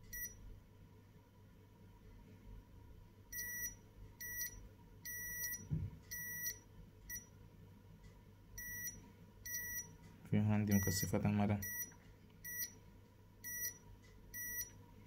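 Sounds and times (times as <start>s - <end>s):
multimeter buzzer beeping: 0.0s - 0.4s, 3.3s - 7.3s, 8.6s - 9.9s, 10.7s - 12.8s, 13.4s - 14.8s
soft low thud: 5.7s - 6.0s.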